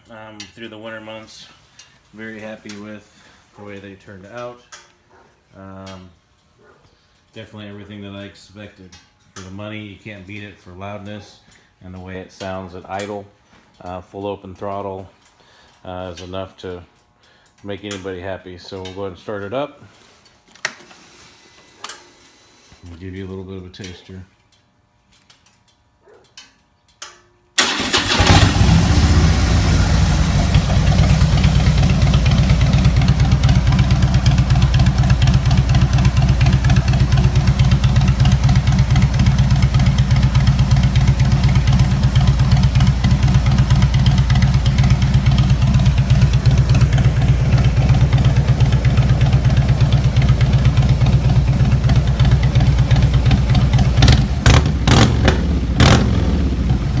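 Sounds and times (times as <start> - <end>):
motorcycle starting up: 27.6 - 57.0
motorcycle throttle blips: 27.6 - 57.0
motorcycle idling loudly: 28.0 - 57.0.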